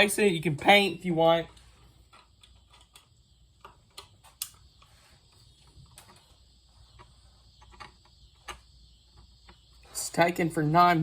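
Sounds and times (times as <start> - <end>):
faint clicks and taps: 1.5 - 9.7.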